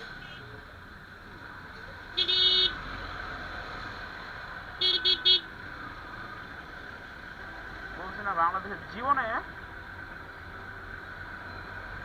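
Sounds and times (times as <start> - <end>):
road and engine noise: 0.0 - 12.0
vehicle horn honking: 2.2 - 2.8.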